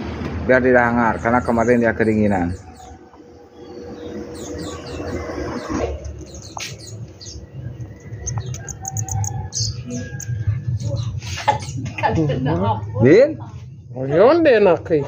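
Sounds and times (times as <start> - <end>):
small birds chirping: 0.8 - 12.1
low rumble: 2.0 - 12.0.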